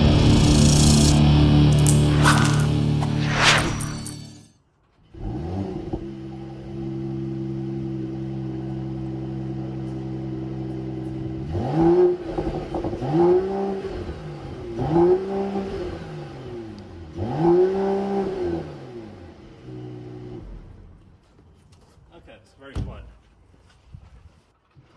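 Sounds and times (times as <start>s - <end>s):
car engine idling and revving: 5.2s - 21.0s.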